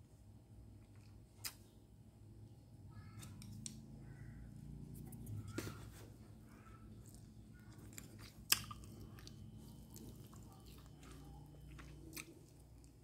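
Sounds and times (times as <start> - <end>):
person chewing crispy food: 6.4 - 13.0.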